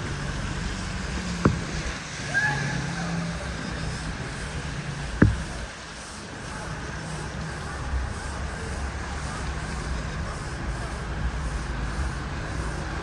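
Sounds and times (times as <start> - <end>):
vehicle engine humming: 0.0 - 13.0
wet hiss: 0.1 - 13.0
sharp knocks: 1.2 - 2.0, 5.1 - 5.7.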